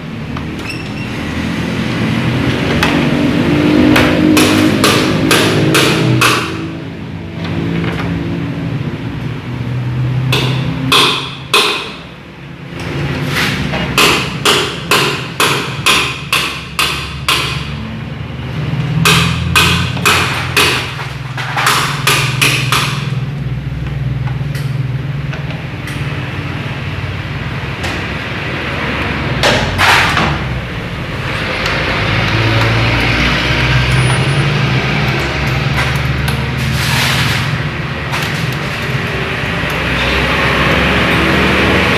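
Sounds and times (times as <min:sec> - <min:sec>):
sharp knocks: 0:03.9 - 0:06.8, 0:19.0 - 0:23.2.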